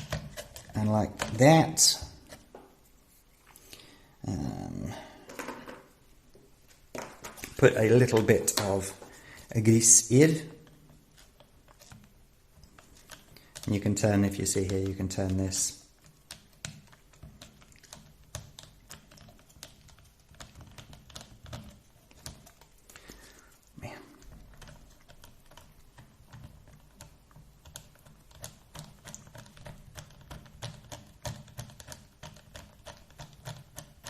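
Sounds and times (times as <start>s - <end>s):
plastic parts clicking and tapping: 6.9s - 10.0s, 10.6s - 23.6s, 24.2s - 34.0s.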